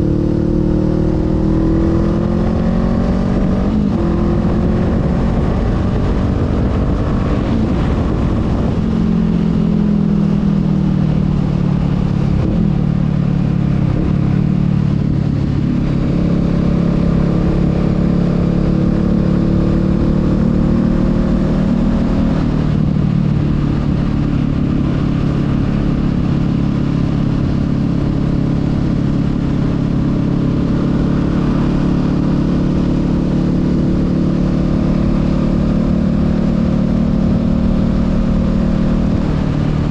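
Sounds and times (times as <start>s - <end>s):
motorcycle engine running: 0.0s - 39.9s
wind rumbling on microphone: 0.0s - 39.9s.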